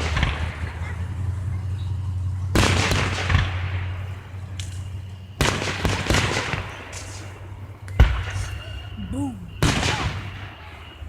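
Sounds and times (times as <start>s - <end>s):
small firework pops: 4.6s - 8.5s.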